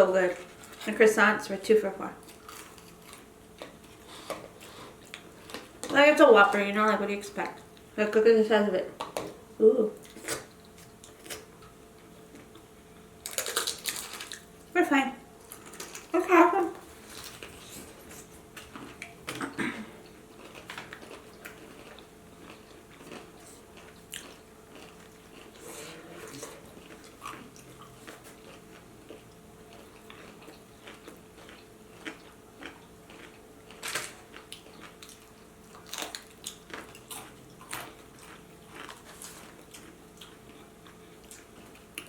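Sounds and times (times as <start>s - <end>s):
person biting and chewing: 13.2s - 14.5s, 26.3s - 42.0s.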